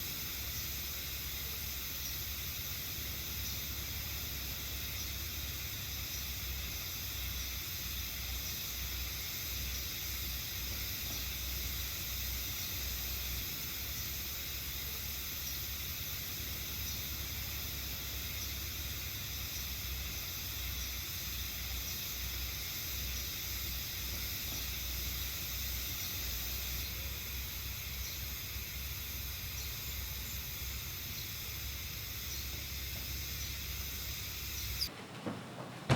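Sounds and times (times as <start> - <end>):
cicadas shrilling: 0.0 - 34.9.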